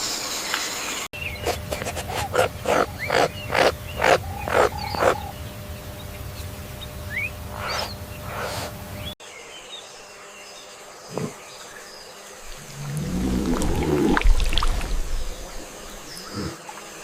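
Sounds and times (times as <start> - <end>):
large animal calling: 2.2 - 5.3, 12.5 - 16.6.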